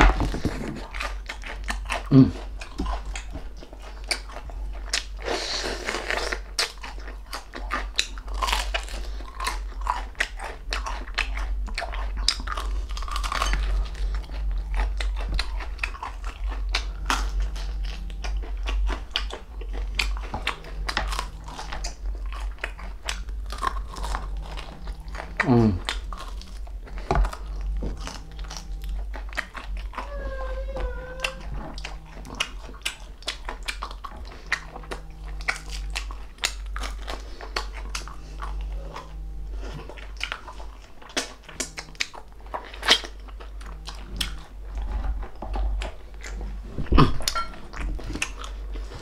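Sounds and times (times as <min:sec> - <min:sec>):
crunching fried skin: 0:00.0 - 0:30.0
chewing: 0:00.0 - 0:49.0
low hum: 0:00.0 - 0:49.0.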